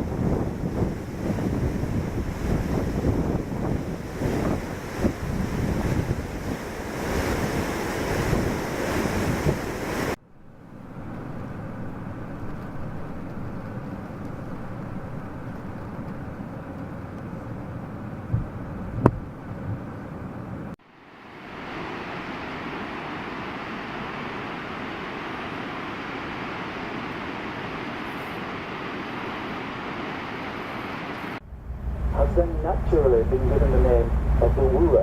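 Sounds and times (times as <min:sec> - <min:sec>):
wind buffeting microphone: 0:00.0 - 0:10.2, 0:11.1 - 0:20.8, 0:31.4 - 0:35.0.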